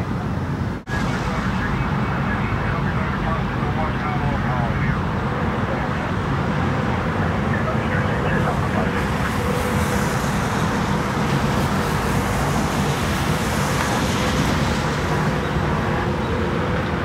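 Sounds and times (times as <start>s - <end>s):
vehicle and road noise: 0.0s - 17.0s.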